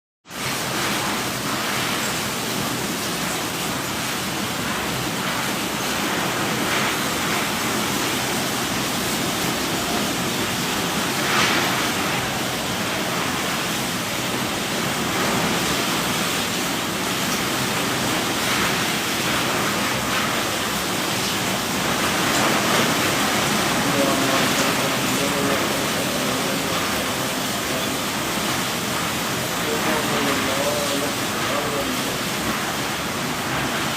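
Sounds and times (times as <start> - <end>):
heavy rain falling: 0.2 - 33.9.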